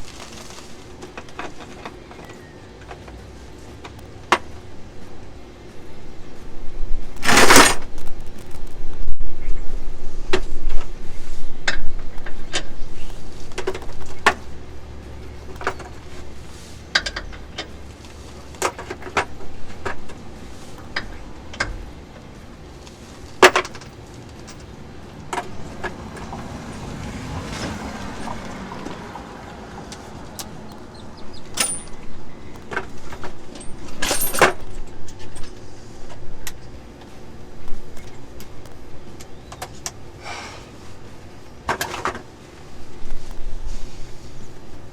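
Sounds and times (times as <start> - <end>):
hand tools clanking on metal: 7.2 - 7.9, 15.3 - 35.7.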